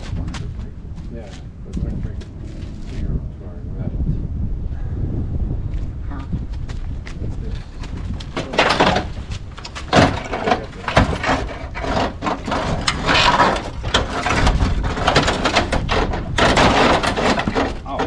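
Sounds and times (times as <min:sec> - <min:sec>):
tools clattering in engine bay: 0:08.4 - 0:18.0.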